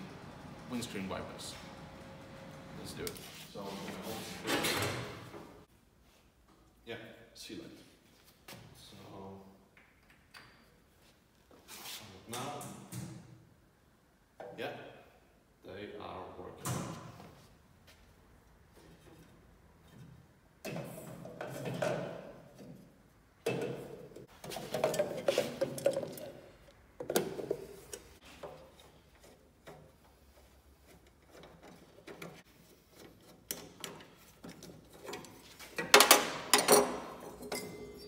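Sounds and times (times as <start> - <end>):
parts rustling and knocking: 18.7 - 38.0
metal and glass clinks: 36.6 - 38.0.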